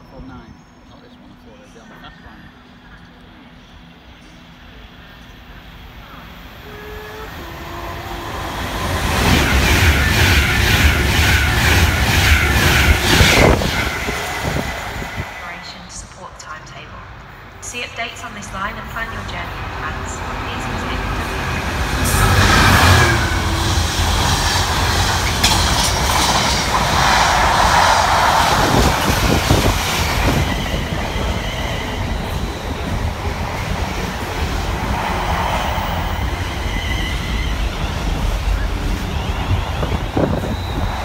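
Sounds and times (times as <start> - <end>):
diesel locomotive passing: 0.0 - 41.0
wagons clattering over rails: 23.0 - 27.5.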